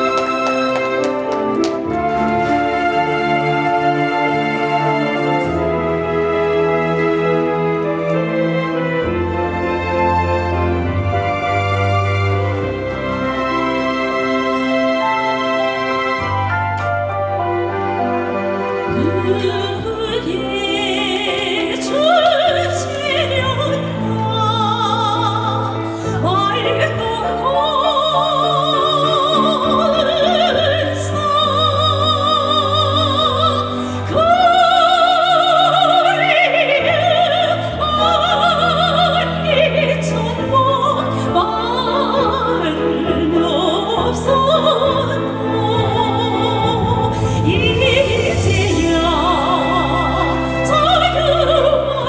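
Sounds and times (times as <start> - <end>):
instrumental accompaniment: 0.0 - 52.0
woman singing operatically: 18.9 - 52.0.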